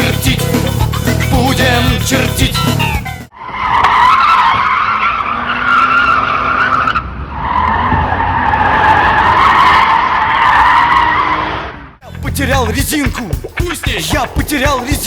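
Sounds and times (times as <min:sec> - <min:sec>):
car tyres squealing: 0:02.8 - 0:12.0
low engine rumble: 0:12.0 - 0:15.0.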